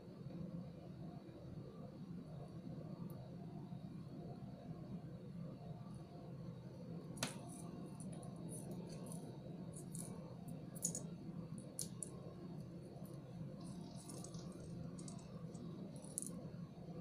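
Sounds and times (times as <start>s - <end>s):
steady low hum: 0.0s - 17.0s
plastic beads and pins clicking: 10.8s - 11.0s, 11.8s - 12.1s, 13.6s - 16.4s.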